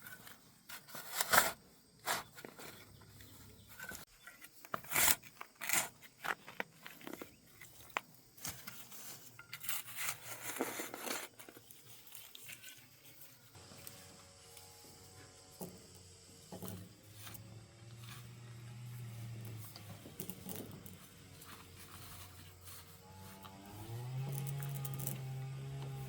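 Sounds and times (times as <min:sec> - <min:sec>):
crunching tearing and rustling: 0:04.5 - 0:14.0.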